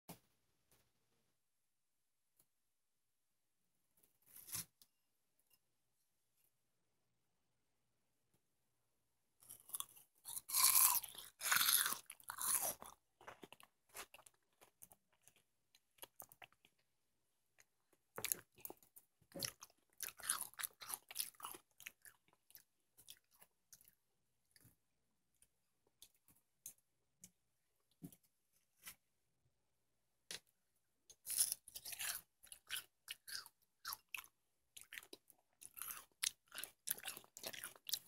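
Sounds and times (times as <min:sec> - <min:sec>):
watermelon being bitten and chewed: 0:09.4 - 0:16.8, 0:17.6 - 0:24.0, 0:31.2 - 0:38.0.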